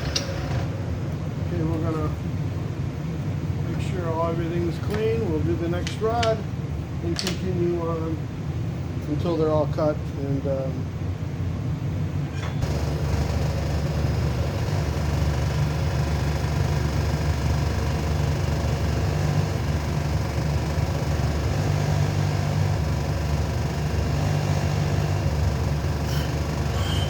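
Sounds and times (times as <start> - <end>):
grinder motor humming: 12.6 - 27.0.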